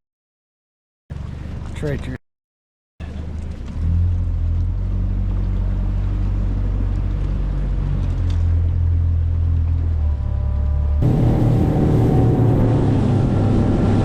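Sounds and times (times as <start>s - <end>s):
outboard motor running: 3.0s - 14.0s
water noise: 3.0s - 14.0s.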